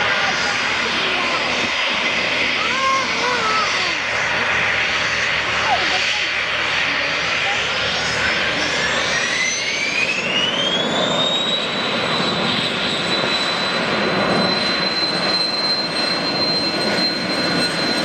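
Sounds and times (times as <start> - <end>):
turbine engine whine: 0.0 - 18.0.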